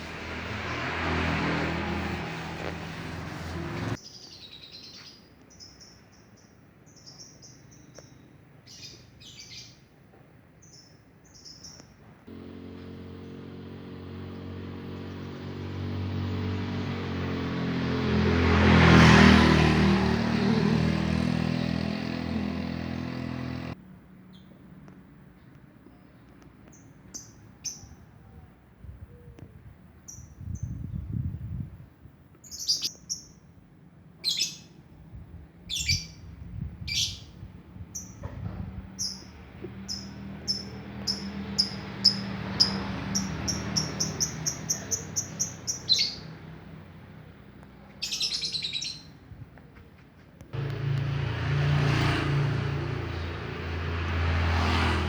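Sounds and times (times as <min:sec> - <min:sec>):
songbird chirping: 0:04.0 - 0:09.9, 0:10.6 - 0:17.0, 0:39.0 - 0:46.5, 0:47.8 - 0:49.2.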